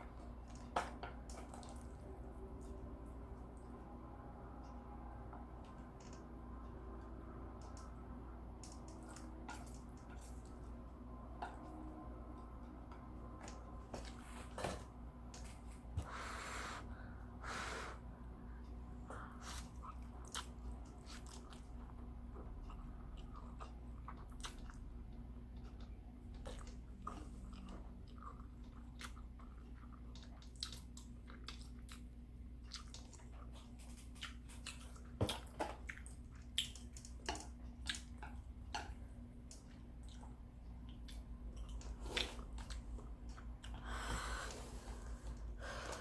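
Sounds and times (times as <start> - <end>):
steady low hum: 0.0 - 46.0
person chewing noodles: 8.6 - 11.6, 19.2 - 46.0
wet smacks and clicks: 32.7 - 43.7.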